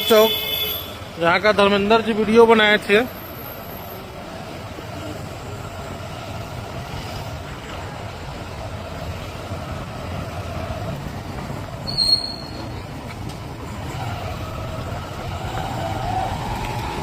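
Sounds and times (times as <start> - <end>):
vehicle engine and road noise: 0.0 - 17.0
high-pitched squeal: 11.8 - 12.8.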